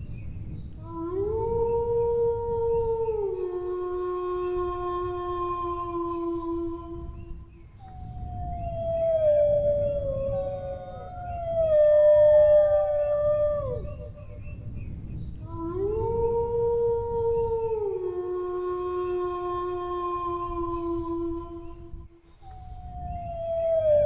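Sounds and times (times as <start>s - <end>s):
steady low rumble: 0.0s - 22.2s
dog howling: 8.0s - 14.4s.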